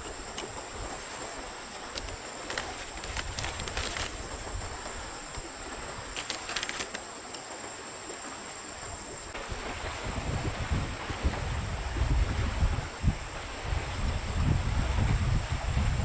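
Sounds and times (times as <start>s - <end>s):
high thin insect drone: 0.0s - 9.4s
stream water hiss: 0.0s - 16.0s.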